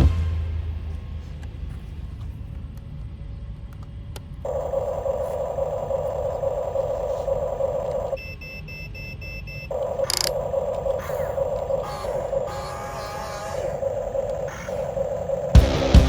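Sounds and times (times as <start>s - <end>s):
low rumble: 0.0s - 4.9s
small electric motor whining: 4.5s - 8.2s, 9.7s - 15.6s.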